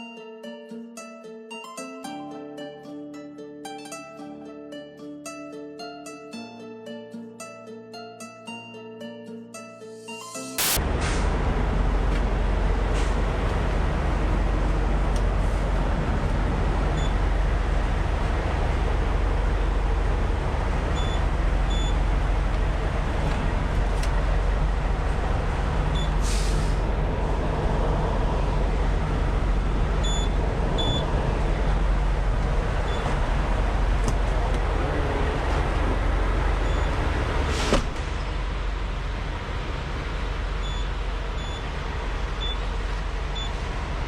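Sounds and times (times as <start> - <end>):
brief hiss: 10.1 - 11.3, 26.2 - 26.8
truck engine and road noise: 10.4 - 44.0.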